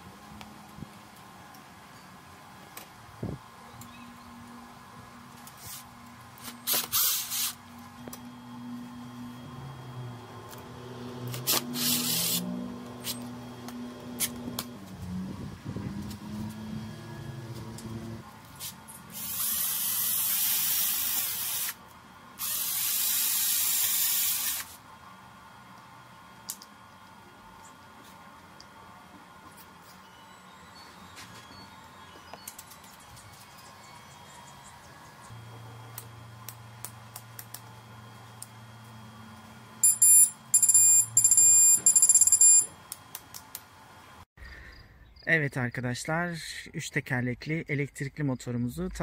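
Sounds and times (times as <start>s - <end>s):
paint spraying hiss: 18.6s - 21.8s
electronic beeper alarm tone: 39.8s - 42.7s.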